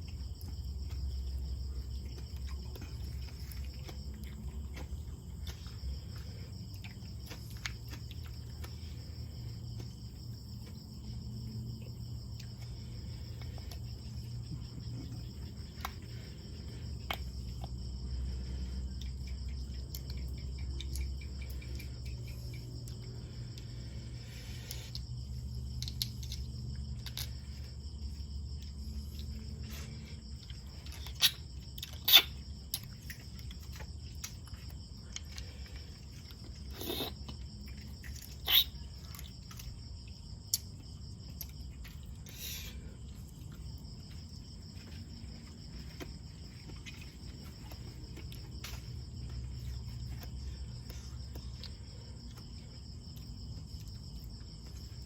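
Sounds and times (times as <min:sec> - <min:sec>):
sharp clicks and cracks from eating: 0:00.0 - 0:11.2, 0:12.1 - 0:17.9, 0:18.9 - 0:23.8, 0:24.6 - 0:27.7, 0:30.3 - 0:44.2
crickets trilling: 0:00.0 - 0:55.0.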